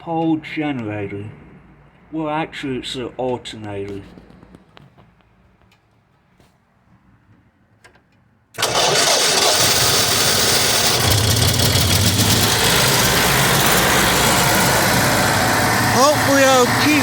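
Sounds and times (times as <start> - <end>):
alternator hum: 8.6 - 17.0
generator engine running: 8.6 - 17.0.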